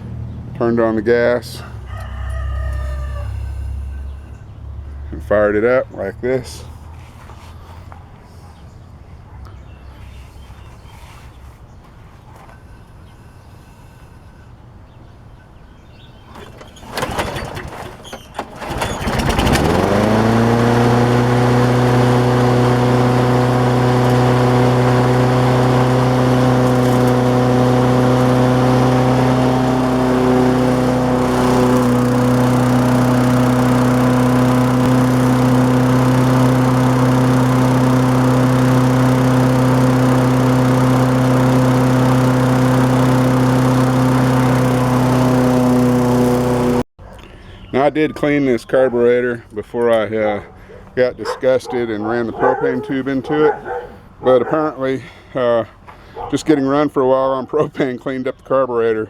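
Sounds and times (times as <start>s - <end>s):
lawnmower engine cranking: 16.3s - 46.8s
lawnmower engine running: 16.4s - 46.9s.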